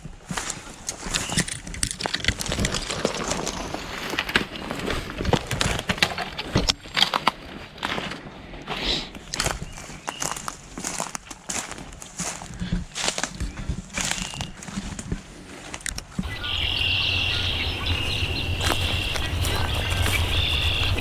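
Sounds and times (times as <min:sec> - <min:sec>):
footsteps through dry grass: 0:09.4 - 0:21.0.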